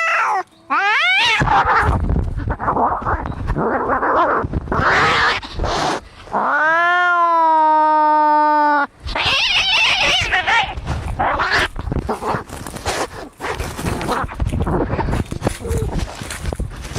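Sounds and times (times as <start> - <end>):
cat yowling: 0.0 - 2.0, 4.8 - 5.5, 6.4 - 11.7
cats hissing and spitting: 1.2 - 6.5, 9.0 - 16.2.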